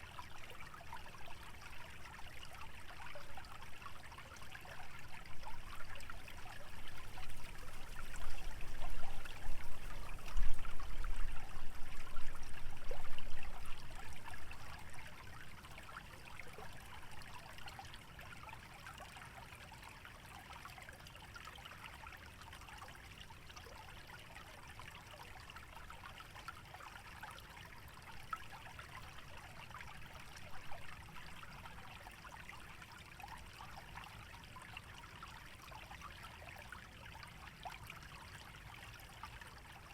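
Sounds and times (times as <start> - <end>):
stream trickling and gurgling: 0.0 - 39.9
wind rumble on microphone: 6.5 - 15.1.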